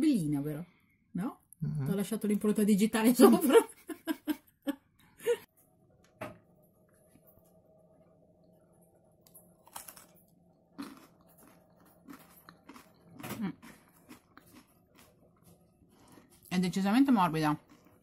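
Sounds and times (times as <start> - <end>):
chewing crunchy cake: 9.2 - 16.5, 17.5 - 18.0.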